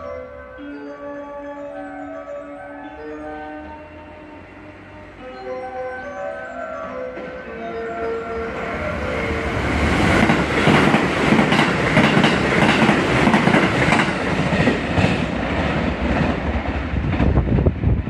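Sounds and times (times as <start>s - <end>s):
train wheels clattering: 9.6s - 17.6s.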